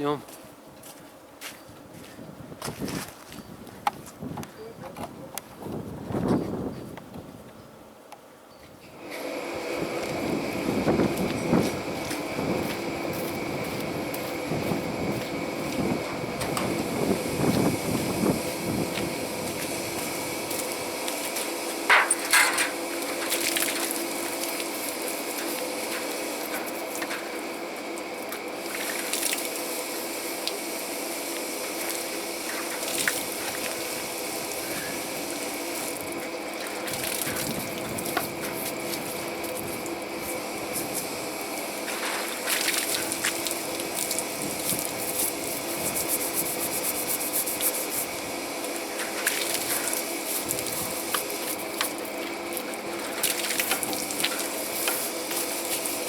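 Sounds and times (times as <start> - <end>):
pump humming: 8.8 - 56.0
pressure washer jet hissing: 14.1 - 56.0
water spattering: 16.4 - 27.1, 28.5 - 56.0.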